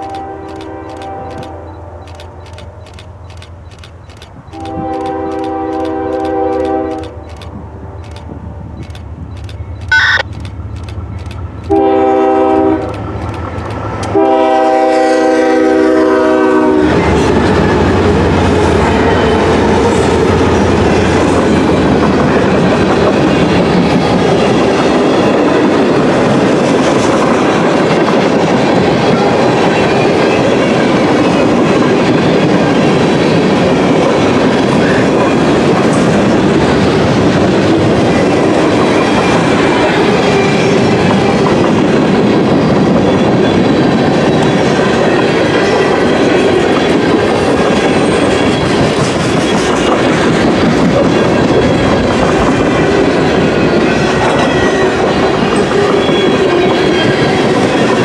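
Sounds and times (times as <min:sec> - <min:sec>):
locomotive horn blasts: 0:00.0 - 0:02.0, 0:04.5 - 0:07.2, 0:09.9 - 0:10.2, 0:11.7 - 0:13.0, 0:14.1 - 0:17.1
freight train wheels clattering: 0:00.0 - 0:58.0.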